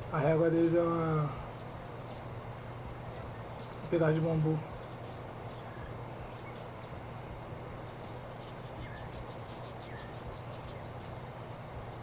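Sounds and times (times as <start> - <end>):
background hiss: 0.0 - 12.0
low hum: 0.0 - 12.0
faint high chirps: 8.7 - 11.0.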